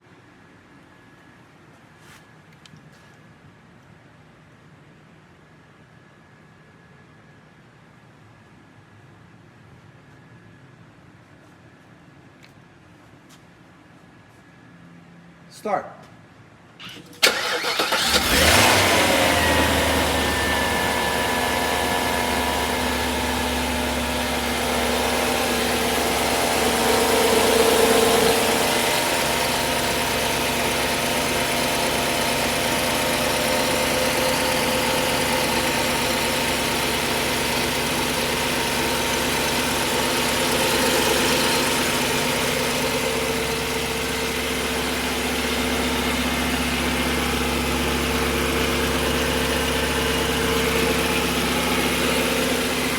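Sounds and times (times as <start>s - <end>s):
car engine idling: 17.2s - 52.9s.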